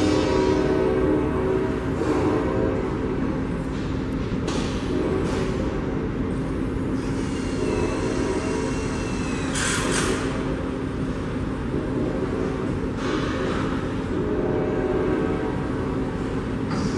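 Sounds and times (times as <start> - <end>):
train passing: 0.0 - 9.1
diesel locomotive running: 0.0 - 16.9.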